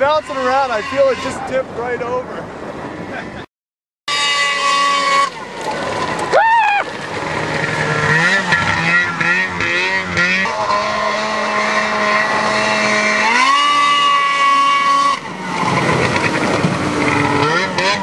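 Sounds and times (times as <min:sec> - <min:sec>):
vehicle engine working hard: 0:04.1 - 0:18.0.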